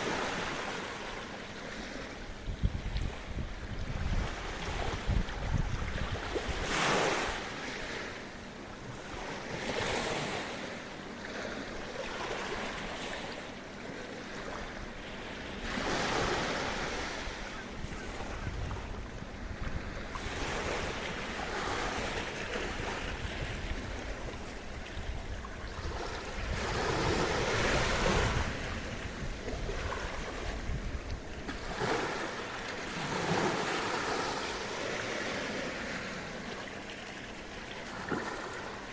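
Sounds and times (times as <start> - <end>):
gentle waves washing on shore: 0.0 - 38.9
wind buffeting microphone: 2.3 - 6.8, 17.2 - 32.1.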